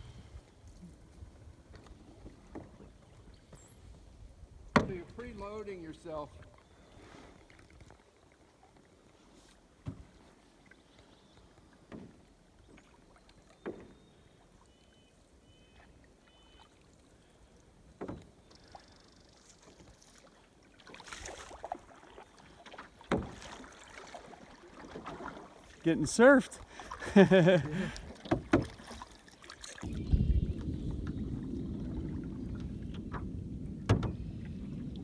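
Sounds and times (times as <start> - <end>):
canoe paddle splashes: 0.1 - 35.0
water wash: 22.6 - 35.0.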